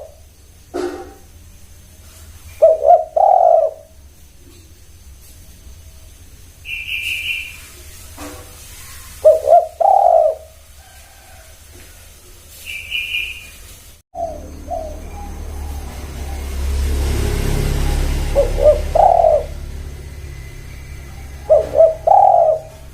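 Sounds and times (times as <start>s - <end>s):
dove cooing: 2.5s - 4.0s, 8.2s - 11.3s, 14.2s - 22.9s
small bird chirp: 5.4s - 10.4s, 12.6s - 16.8s, 17.8s - 22.9s.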